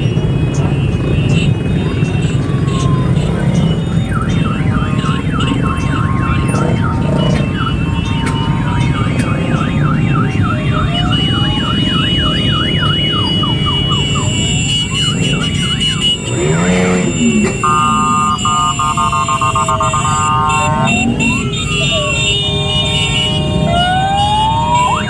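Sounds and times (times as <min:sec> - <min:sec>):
electronic sirens sweeping: 0:00.0 - 0:25.0
motorcycle engines rumbling: 0:00.0 - 0:25.0
pulsing electronic tone: 0:14.5 - 0:22.8.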